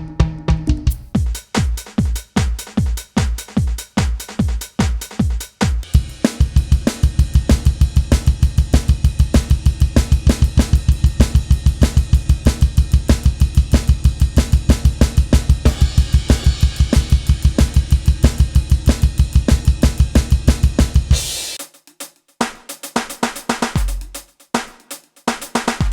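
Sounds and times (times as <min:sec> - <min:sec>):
electronic drum kit playing: 0:00.0 - 0:21.8, 0:22.4 - 0:25.9
cymbal crash: 0:14.3 - 0:21.6.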